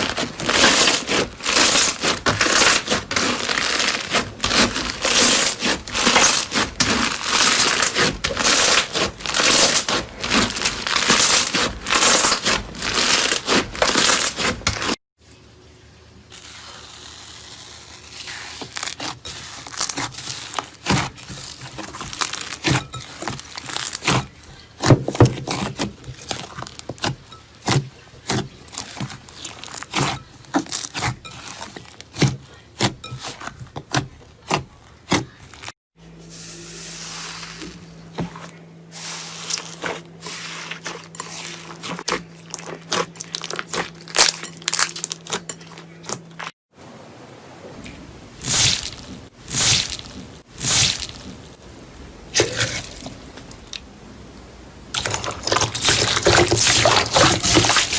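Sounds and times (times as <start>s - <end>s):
slime crackling and popping: 0.0s - 15.0s, 16.3s - 24.9s, 40.8s - 45.4s.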